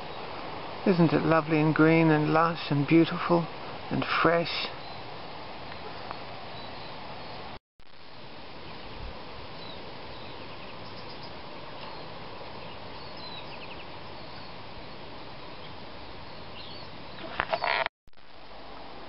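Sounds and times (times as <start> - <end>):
steady hiss: 0.0 - 19.0
birds chirping: 4.5 - 7.5, 9.5 - 14.7, 15.3 - 17.9.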